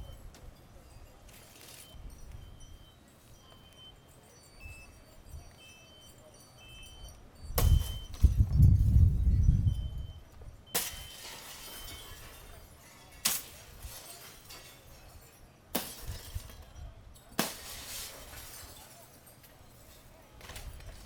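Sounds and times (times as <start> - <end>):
wind rumble: 7.4 - 10.6
glass shattering: 7.5 - 8.4, 10.7 - 21.0.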